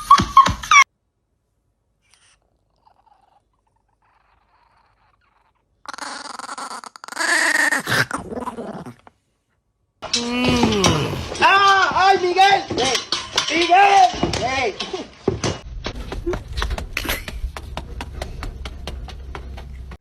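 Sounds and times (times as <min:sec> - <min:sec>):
animal calling: 0:02.0 - 0:09.0.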